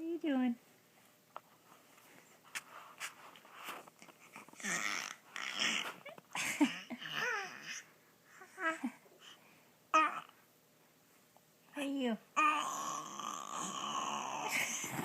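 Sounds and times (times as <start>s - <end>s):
child making dinosaur roars: 12.4s - 14.5s.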